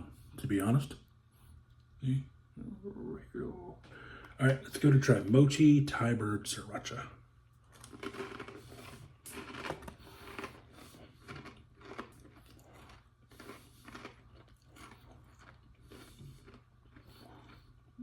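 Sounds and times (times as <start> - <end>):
person chewing crunchy snack: 7.7 - 18.0.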